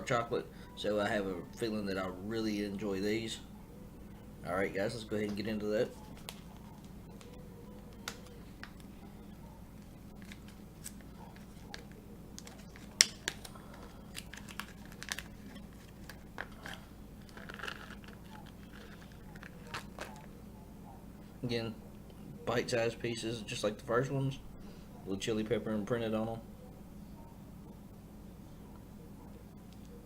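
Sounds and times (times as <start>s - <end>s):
candy packaging crinkling: 5.2s - 20.4s.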